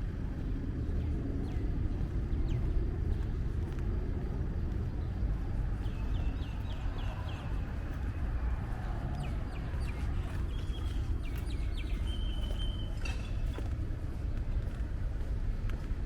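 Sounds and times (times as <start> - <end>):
birds chirping: 4.9 - 13.6.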